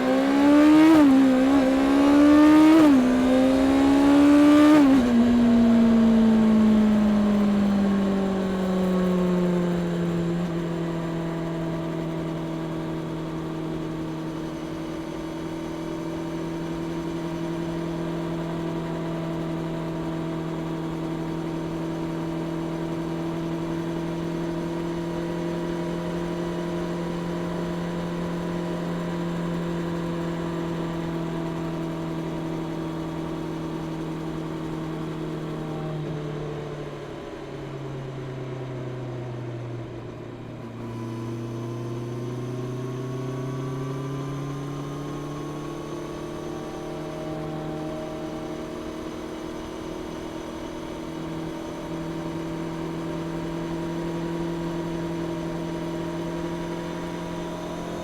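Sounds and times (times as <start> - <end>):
motorcycle engine revving: 0.0 - 15.7.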